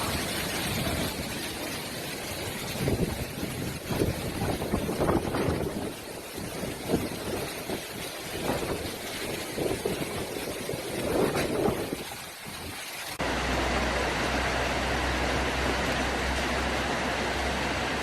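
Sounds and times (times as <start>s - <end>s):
gusting wind: 0.0s - 18.0s
rushing water: 0.0s - 18.0s
low hum: 13.2s - 18.0s.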